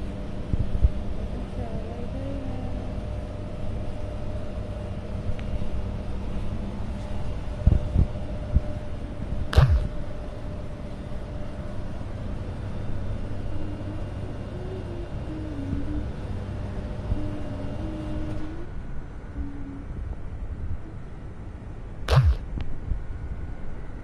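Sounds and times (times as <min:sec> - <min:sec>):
wind rumbling on microphone: 0:05.2 - 0:10.2
sharp knock: 0:09.6 - 0:09.9, 0:22.1 - 0:22.4.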